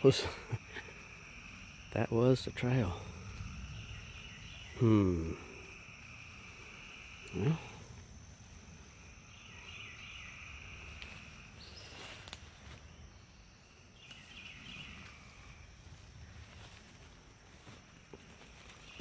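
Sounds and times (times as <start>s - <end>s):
insect chorus trilling: 0.0s - 19.0s.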